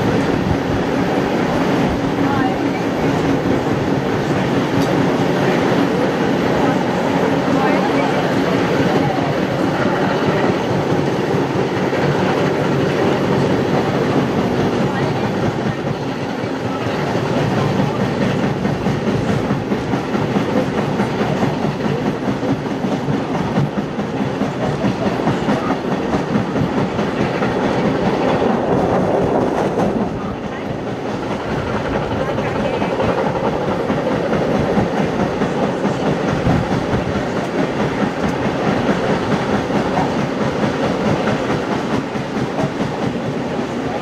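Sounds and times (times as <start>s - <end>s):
train wheels clickety-clacking: 0.0s - 44.0s.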